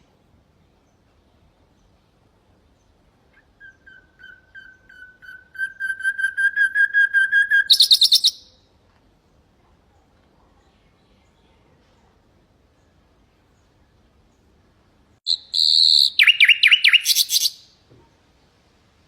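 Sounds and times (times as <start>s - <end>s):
nightingale song: 0.0s - 11.6s, 12.5s - 19.0s.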